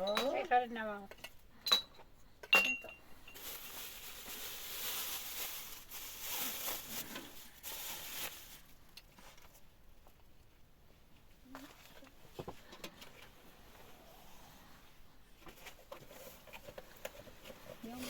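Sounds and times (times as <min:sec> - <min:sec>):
glass dishware clinking: 0:01.6 - 0:03.0.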